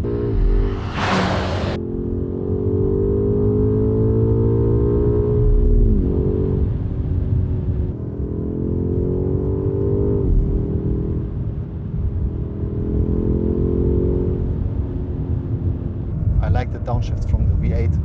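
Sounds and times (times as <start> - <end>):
car engine accelerating: 0.0 - 5.1.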